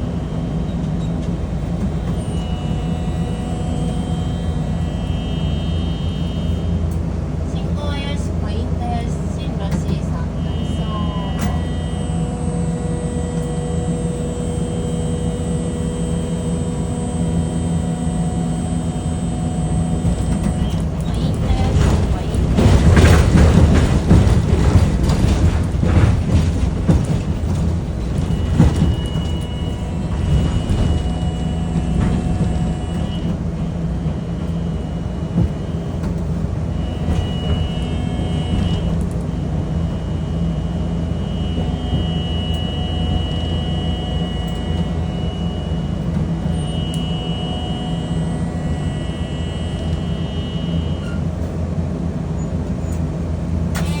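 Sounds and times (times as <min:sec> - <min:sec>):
streetcar clattering over track: 0:00.0 - 0:54.0
streetcar low rumble: 0:00.0 - 0:54.0
high whining tones: 0:10.2 - 0:51.3.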